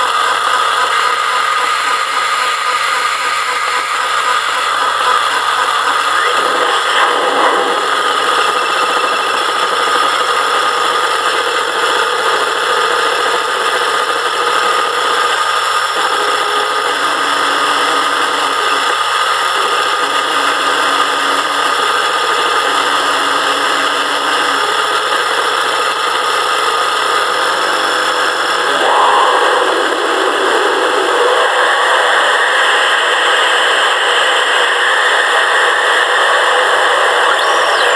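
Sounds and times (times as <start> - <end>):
electronic noise drone: 0.0 - 37.9
high tone: 36.9 - 37.9.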